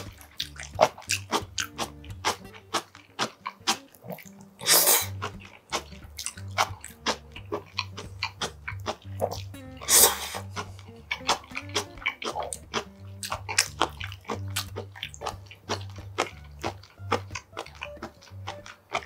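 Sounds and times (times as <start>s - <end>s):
wet chewing and lip smacks: 0.0s - 19.0s
loud slurp: 3.2s - 6.3s, 8.3s - 16.7s.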